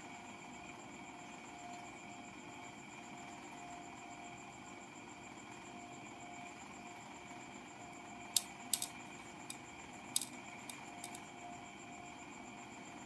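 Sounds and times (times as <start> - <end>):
faint electrical whine: 8.0 - 11.3
small hard parts clicking: 8.4 - 9.6, 10.2 - 11.2.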